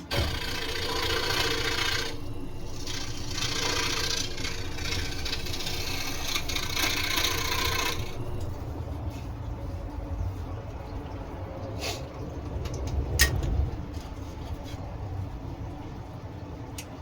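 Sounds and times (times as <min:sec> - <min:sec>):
scroll saw running: 0:00.0 - 0:08.6.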